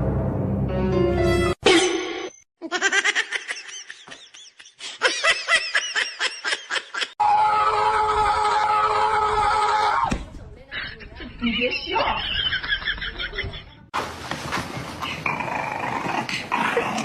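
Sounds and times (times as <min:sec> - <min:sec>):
high-pitched laughter: 0:02.6 - 0:07.4.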